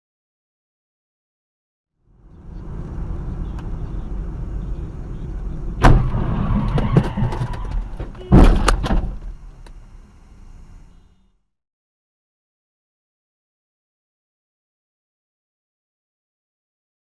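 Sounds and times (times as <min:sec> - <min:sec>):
car road and engine noise: 0:02.0 - 0:11.5
car collision bangs: 0:05.8 - 0:09.4.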